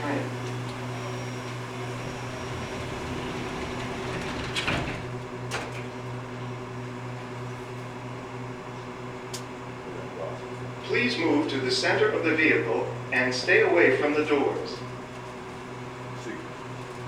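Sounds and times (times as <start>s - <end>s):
people mover low hum: 0.0s - 17.0s.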